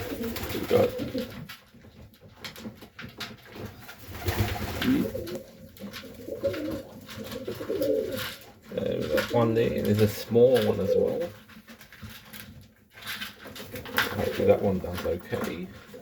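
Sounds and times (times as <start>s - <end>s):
pigeons cooing: 0.0s - 1.5s, 3.6s - 9.4s, 10.6s - 11.4s.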